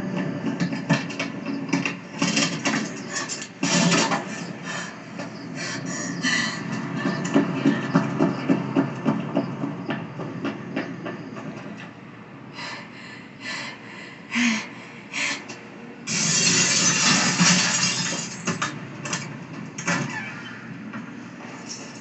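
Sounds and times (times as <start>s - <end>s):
knocks and clatters: 0.0s - 4.5s, 6.7s - 12.0s, 16.1s - 22.0s
loud crashing and grinding: 16.1s - 19.3s.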